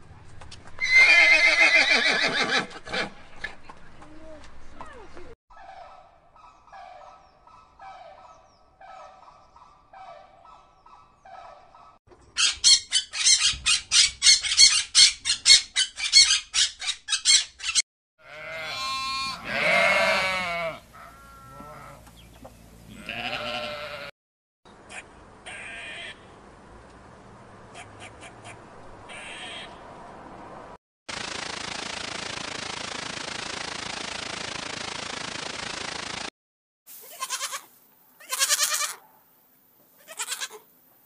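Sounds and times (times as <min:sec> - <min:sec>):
sheep bleating: 0:18.2 - 0:22.0, 0:22.9 - 0:24.1, 0:25.5 - 0:26.2, 0:37.0 - 0:39.0, 0:40.0 - 0:40.6
harsh macaw squawks: 0:24.9 - 0:26.2, 0:27.7 - 0:29.8.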